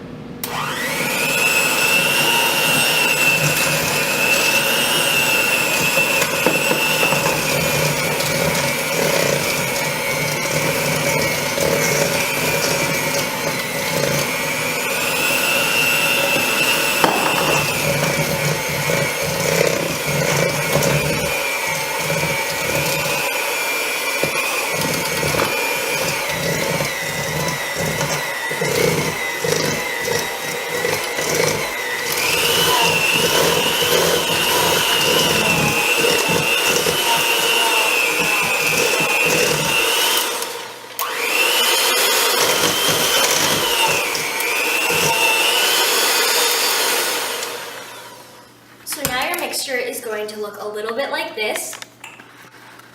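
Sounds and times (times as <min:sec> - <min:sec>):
electric hand mixer whining: 0:00.4 - 0:48.6.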